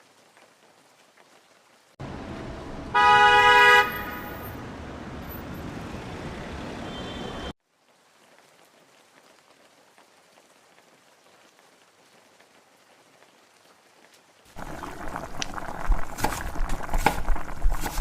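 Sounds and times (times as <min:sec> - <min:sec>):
faint rain patter: 0:00.0 - 0:04.6, 0:05.2 - 0:05.6, 0:07.5 - 0:18.0
vehicle and rain rumble: 0:00.0 - 0:18.0
vehicle horn honk: 0:02.3 - 0:04.6, 0:06.7 - 0:07.5.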